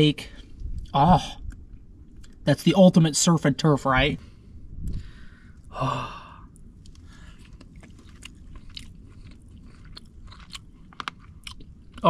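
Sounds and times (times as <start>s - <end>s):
close-up chewing: 6.5s - 12.0s
crab shell crunches and clicks: 6.5s - 12.0s.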